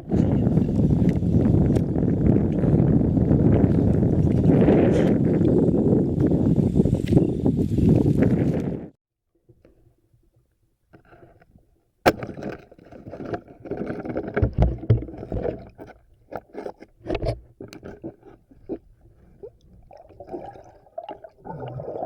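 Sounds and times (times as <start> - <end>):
knocks and scrapes: 10.9 - 19.9
water sloshing and splashing: 12.1 - 22.0.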